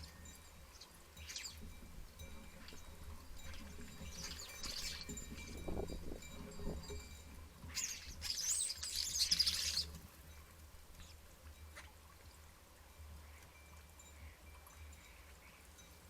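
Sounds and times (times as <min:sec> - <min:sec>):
water splashing in a bird bath: 0:00.0 - 0:16.0
starlings chirping: 0:04.0 - 0:05.3, 0:07.7 - 0:10.0.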